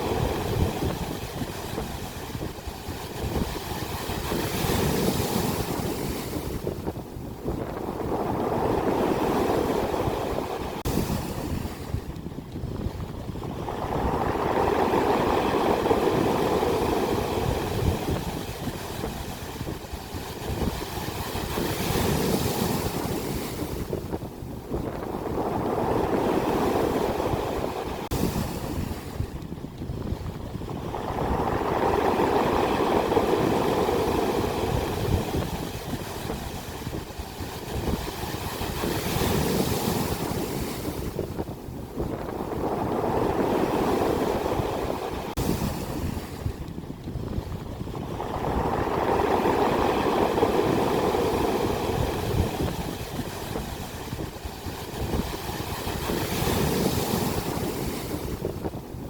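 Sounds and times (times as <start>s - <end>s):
ocean waves breaking: 0.0s - 59.0s
wind rumbling on microphone: 0.0s - 59.0s.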